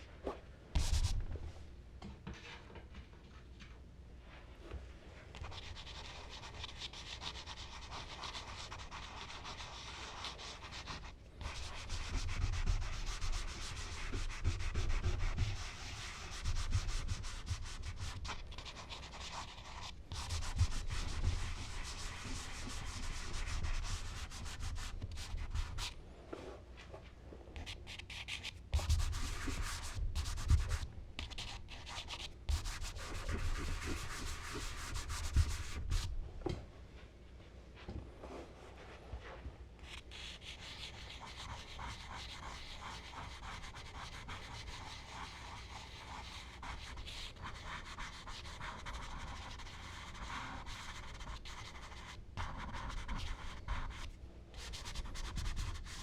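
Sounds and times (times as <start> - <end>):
charcoal scratching on paper: 5.3 - 26.0, 27.6 - 36.1, 39.8 - 56.0.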